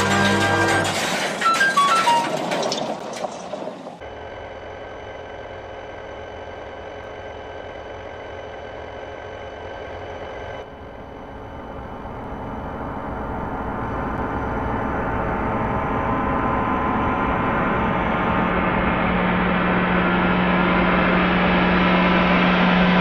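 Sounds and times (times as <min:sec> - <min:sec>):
engine drone: 0:00.0 - 0:23.0.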